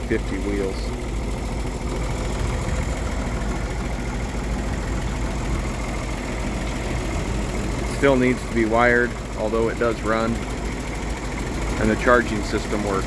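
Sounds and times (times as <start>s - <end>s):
person talking: 0.0s - 1.0s, 7.9s - 10.4s, 11.8s - 13.0s
truck engine idling: 0.0s - 13.0s.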